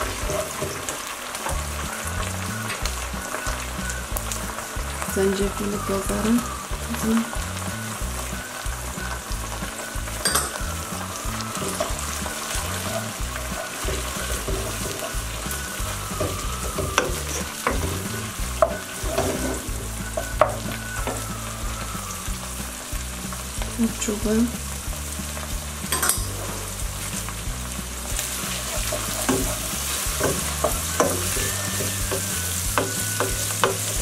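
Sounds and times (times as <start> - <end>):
onions sizzling in oil: 0.0 - 34.0
spoon tapping against pan: 10.2 - 10.7, 30.2 - 34.0.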